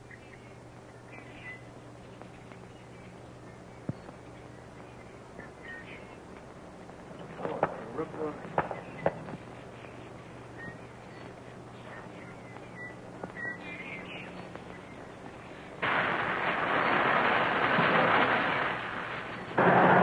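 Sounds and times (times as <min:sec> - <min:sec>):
faint film soundtrack hum and hiss: 0:00.0 - 0:20.0
explosion roar: 0:15.8 - 0:20.0.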